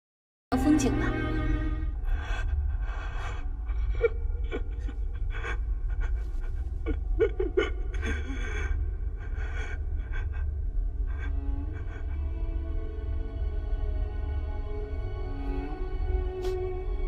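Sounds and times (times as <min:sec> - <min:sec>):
steady low rumble: 0:00.6 - 0:17.0
person breathing heavily: 0:01.9 - 0:13.5, 0:15.5 - 0:16.9.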